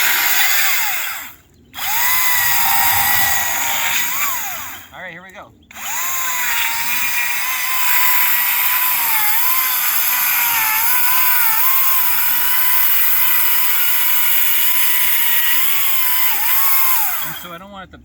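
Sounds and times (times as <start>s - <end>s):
chainsaw cutting log: 5.8s - 17.4s.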